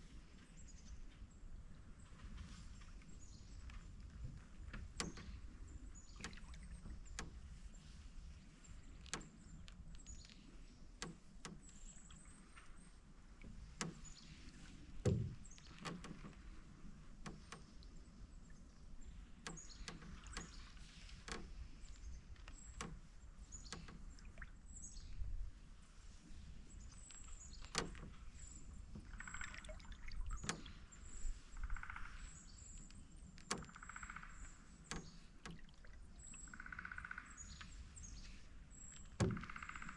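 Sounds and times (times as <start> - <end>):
paddle strokes in water: 0.0 - 39.9
canoe clicks and creaks: 1.0 - 39.9
heavy thump: 15.0 - 15.4.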